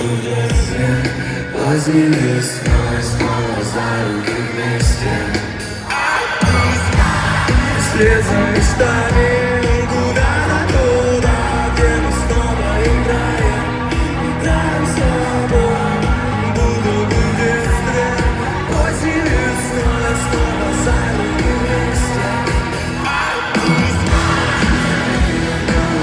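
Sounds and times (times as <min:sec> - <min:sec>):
singing voices: 0:00.0 - 0:26.0
live rock band playing: 0:00.5 - 0:26.0
steady drum beat: 0:00.5 - 0:26.0.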